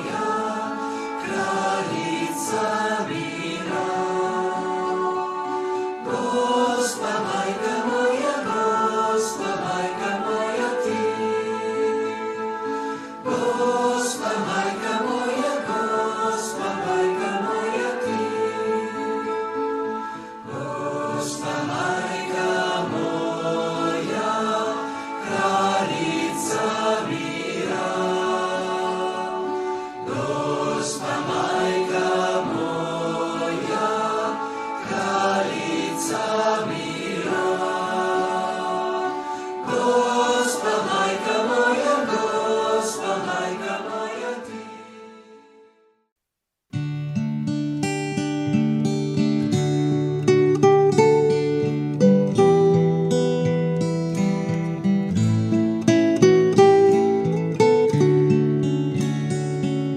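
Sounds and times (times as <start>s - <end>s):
choral chant singing: 0.0s - 45.8s.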